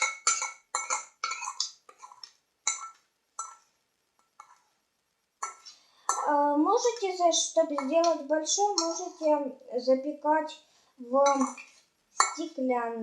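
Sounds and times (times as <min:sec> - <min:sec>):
teaspoon scraping a bowl: 0:05.4 - 0:05.8, 0:07.4 - 0:09.3, 0:11.2 - 0:12.4.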